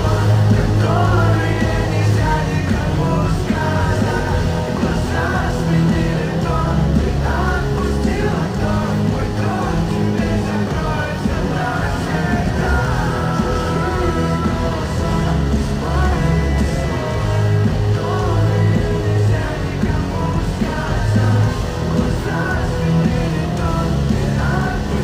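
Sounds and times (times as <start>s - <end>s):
live rock band playing: 0.0s - 25.0s
person singing: 0.0s - 25.0s.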